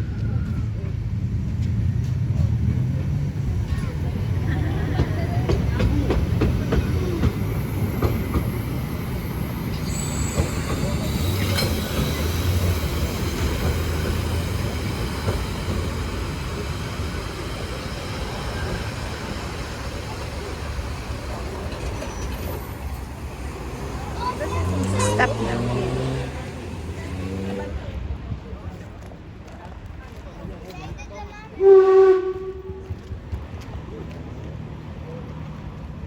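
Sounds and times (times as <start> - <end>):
train wheels rumbling on rail: 0.0 - 36.0
wheel squeal: 8.0 - 15.8, 21.4 - 23.1.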